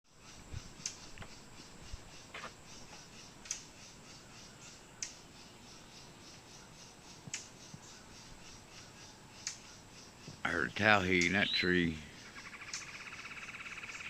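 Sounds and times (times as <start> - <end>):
bird call notes: 7.4 - 14.0.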